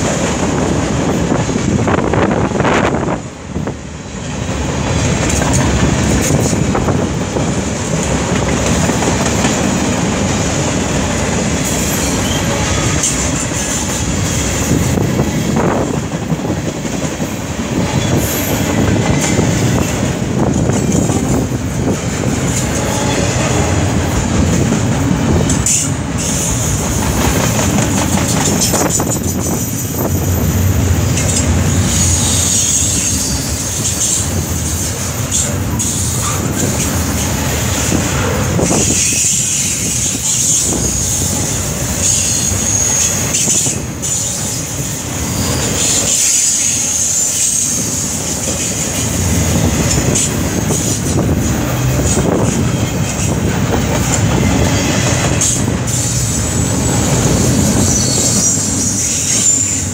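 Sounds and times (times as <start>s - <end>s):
steel wheels rumbling on rail: 0.0s - 59.9s
wheels clicking over rail joints: 4.7s - 15.0s, 15.9s - 42.2s, 42.8s - 59.9s
high wheel squeal: 11.7s - 14.0s, 31.2s - 37.9s, 38.6s - 49.2s, 54.6s - 59.9s.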